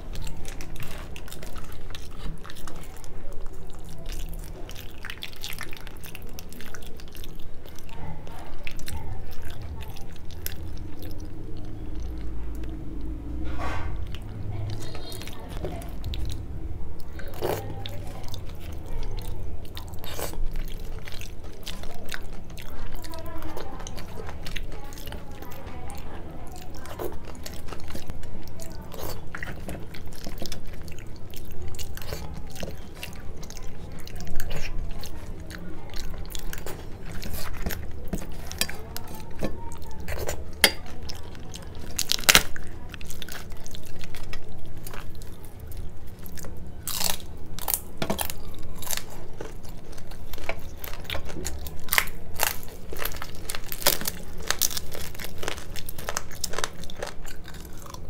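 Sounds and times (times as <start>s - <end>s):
wet chewing: 0.0s - 58.0s
crisp crunching cracks: 17.0s - 58.0s.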